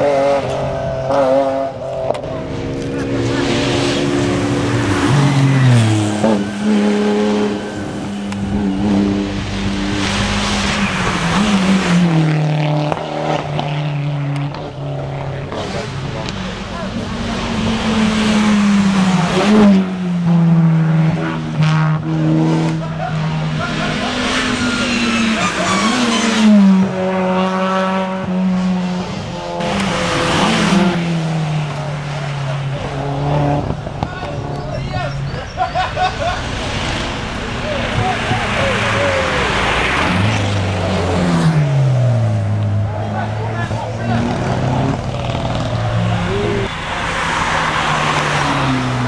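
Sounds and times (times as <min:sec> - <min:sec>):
race car engine at high revs: 0:00.0 - 0:49.0.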